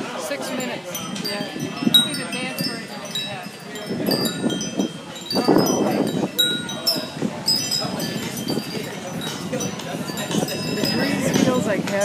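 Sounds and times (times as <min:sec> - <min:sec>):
murmur of voices: 0:00.0 - 0:12.0
wind chimes ringing: 0:00.0 - 0:12.0.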